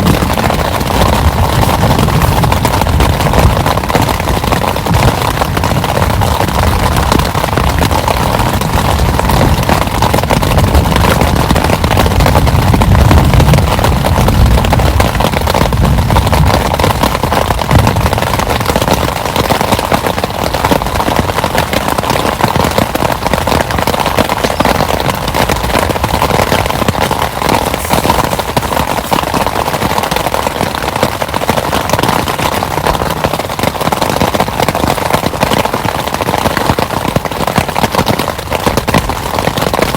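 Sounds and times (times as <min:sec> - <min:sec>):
thunder rumbling: 0:00.0 - 0:18.8
heavy rain falling: 0:00.0 - 0:39.9.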